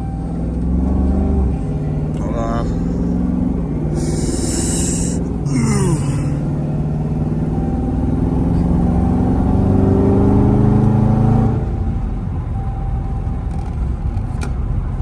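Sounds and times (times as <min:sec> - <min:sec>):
car engine accelerating: 0:06.2 - 0:12.7.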